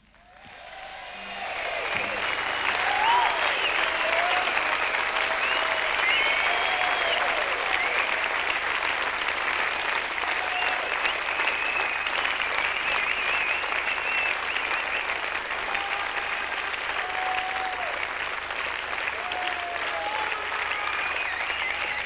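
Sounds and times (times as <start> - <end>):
audience applauding: 0.0 - 22.0
long wavering whistles: 1.4 - 8.0, 11.0 - 15.1.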